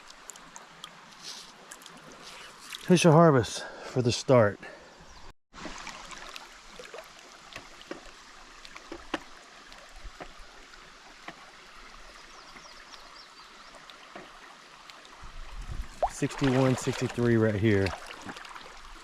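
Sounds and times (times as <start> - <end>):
creek water sloshing: 0.0 - 3.8, 5.5 - 19.0
small splashes: 5.6 - 10.4, 12.5 - 19.0.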